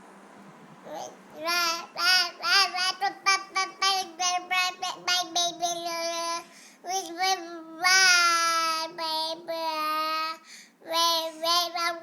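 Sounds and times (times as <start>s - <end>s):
child singing: 1.0s - 12.0s.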